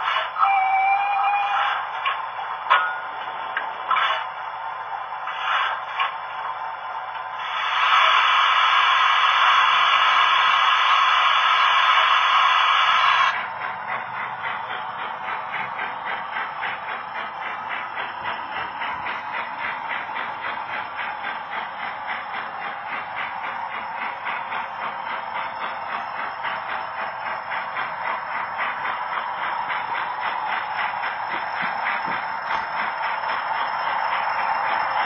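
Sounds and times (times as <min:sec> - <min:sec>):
rhythmic locomotive running sounds: 0:00.0 - 0:35.0.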